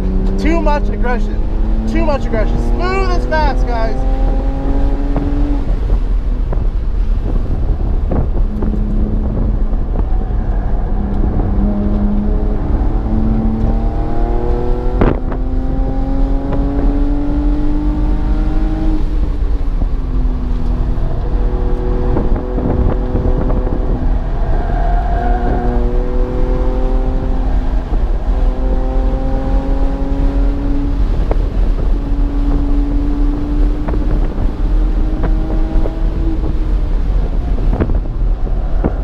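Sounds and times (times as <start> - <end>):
car engine revving: 0.0 - 39.0
road and wind rumble: 0.0 - 39.0.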